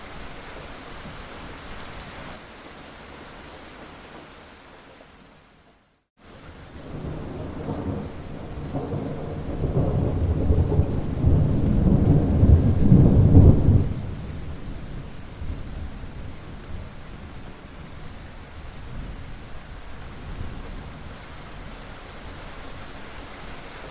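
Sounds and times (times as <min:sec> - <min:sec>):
steady rain: 0:00.0 - 0:23.9
thunder rolling: 0:06.8 - 0:15.7.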